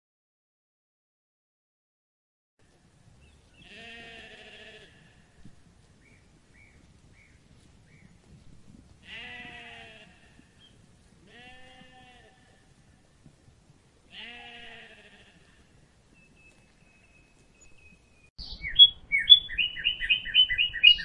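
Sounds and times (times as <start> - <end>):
sheep bleating: 3.6 - 5.4, 9.0 - 12.8, 14.1 - 15.8.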